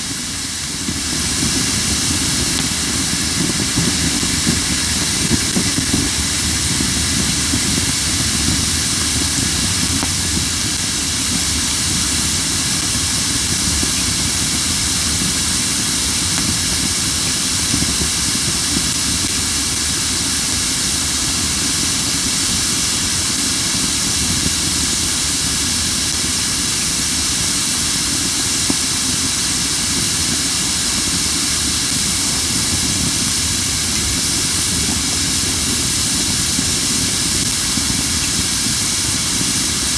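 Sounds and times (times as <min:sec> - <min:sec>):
firewood burning with steady hiss: 0:00.0 - 0:39.9
low rumble: 0:06.0 - 0:13.6.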